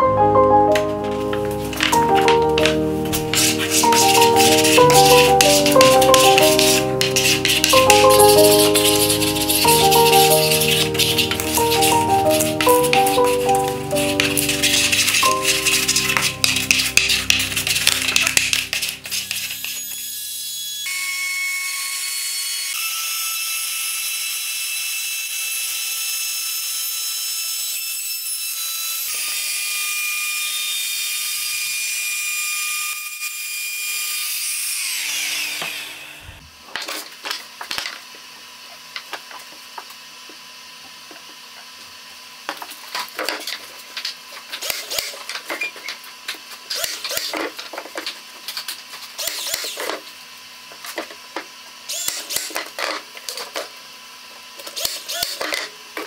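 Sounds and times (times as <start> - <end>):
scraping on wood: 2.6 - 19.8
high-pitched power tool running: 3.3 - 25.1.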